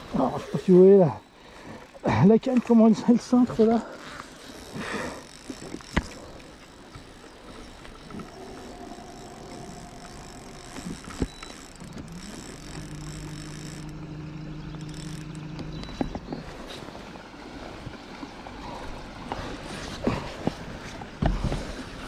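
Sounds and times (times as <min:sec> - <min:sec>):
motor hum: 0:00.0 - 0:22.0.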